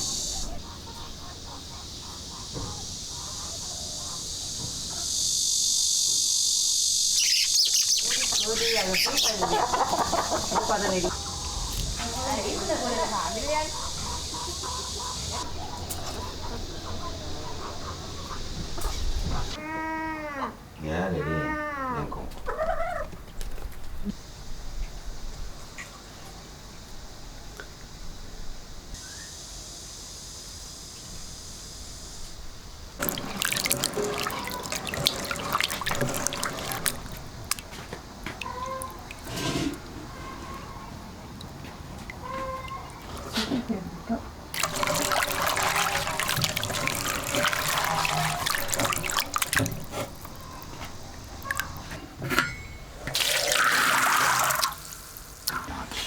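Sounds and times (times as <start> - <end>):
water pouring and splashing: 0.0 - 4.9, 8.0 - 19.6, 32.9 - 43.6, 44.5 - 52.4, 53.0 - 56.0
steady high hiss: 0.0 - 19.6, 24.2 - 34.1, 49.9 - 56.0
rush of water: 33.0 - 39.9, 44.5 - 51.9, 53.1 - 55.7.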